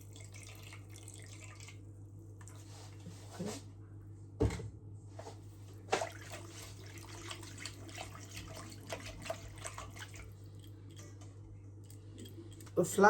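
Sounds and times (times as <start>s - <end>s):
steady low hum: 0.0s - 13.0s
liquid dripping in a bowl: 7.1s - 12.8s.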